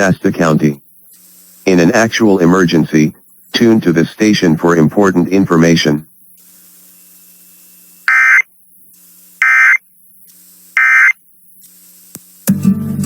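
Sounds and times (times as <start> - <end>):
faint steady hum: 0.0 - 13.0
shrill buzzy data bursts: 5.5 - 12.0
music: 12.4 - 13.0.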